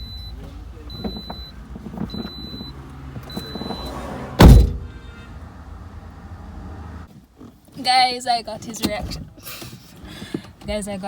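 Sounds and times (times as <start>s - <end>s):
car door warning chime: 0.0s - 4.8s
car door slamming: 0.0s - 5.2s.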